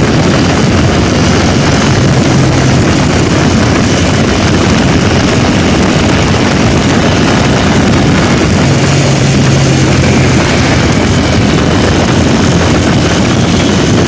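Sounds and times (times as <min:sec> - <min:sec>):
low hum: 0:00.0 - 0:14.0
rush of moving vehicles: 0:00.0 - 0:14.0.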